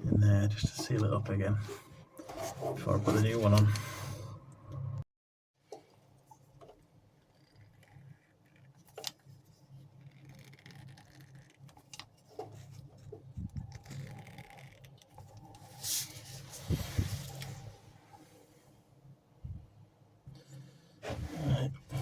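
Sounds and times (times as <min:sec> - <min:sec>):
low steady hum: 0:00.0 - 0:05.1
rubbing and small clicks: 0:05.8 - 0:15.6.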